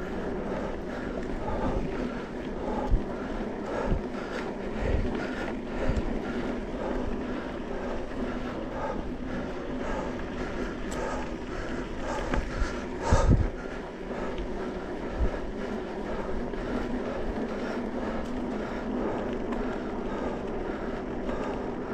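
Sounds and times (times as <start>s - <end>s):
faint steady hum: 0.0s - 21.9s
riding on dirt trail: 0.0s - 21.9s
wind on microphone: 12.0s - 13.7s.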